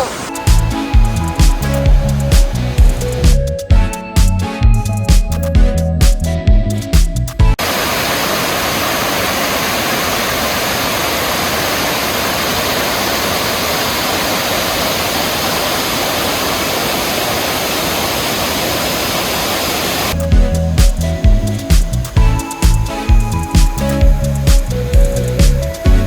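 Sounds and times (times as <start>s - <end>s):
waterfall rushing: 0.0s - 3.3s, 7.6s - 20.2s
background music with a beat: 0.3s - 7.6s, 20.2s - 26.0s.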